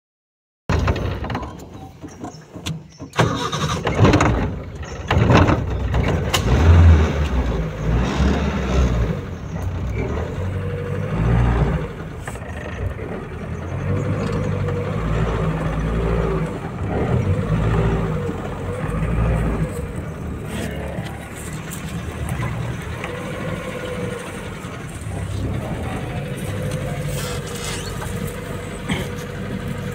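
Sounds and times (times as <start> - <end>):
engine idling: 0.7 - 29.9.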